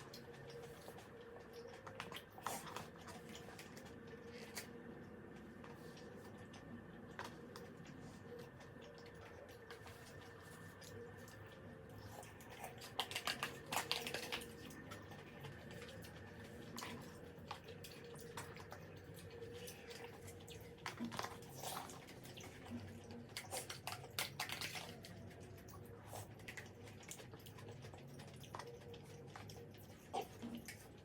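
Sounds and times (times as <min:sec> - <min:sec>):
faint steady hum: 0:00.0 - 0:31.0
person chewing wetly: 0:00.0 - 0:31.0.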